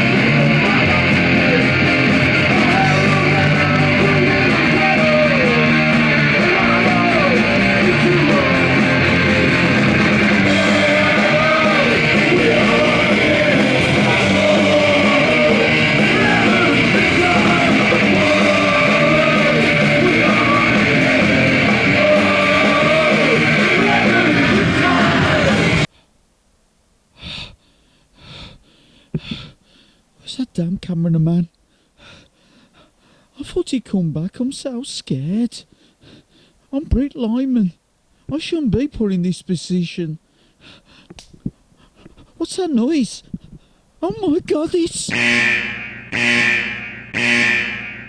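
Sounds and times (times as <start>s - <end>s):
distorted guitars: 0.0s - 25.9s, 44.1s - 48.0s
drums: 0.0s - 25.9s
shouted vocals: 0.0s - 25.9s.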